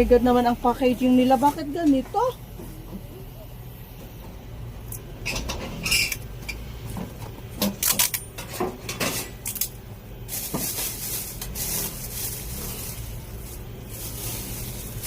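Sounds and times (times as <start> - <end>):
packaging rustling: 9.6 - 15.0.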